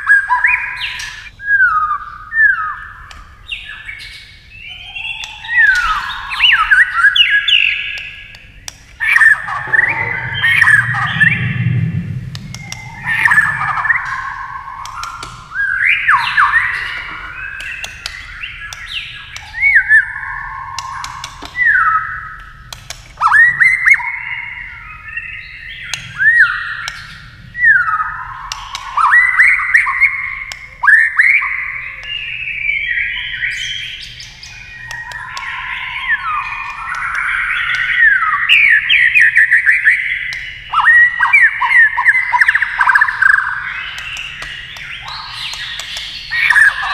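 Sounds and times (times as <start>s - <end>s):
sharp clicks: 7.9s - 11.7s, 14.8s - 15.6s, 17.5s - 20.0s, 20.7s - 21.8s, 22.4s - 23.3s, 43.9s - 46.9s.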